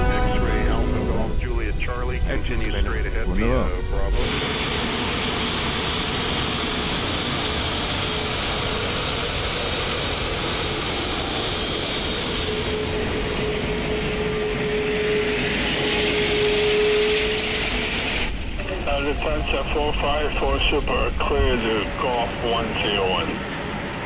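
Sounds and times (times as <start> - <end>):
jet engines idling: 0.0 - 24.0.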